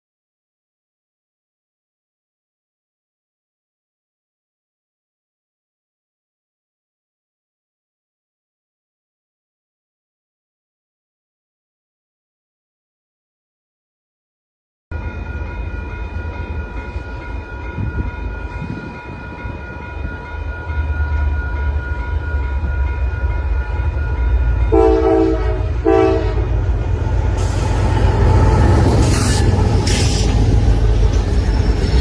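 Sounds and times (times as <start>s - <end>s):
train rumbling past: 14.9s - 32.0s
train horn blasts: 24.7s - 30.3s.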